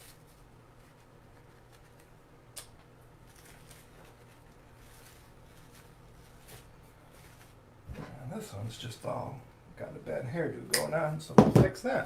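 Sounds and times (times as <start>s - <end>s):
hand rustling materials: 0.0s - 8.1s
steady low hum: 0.0s - 12.0s.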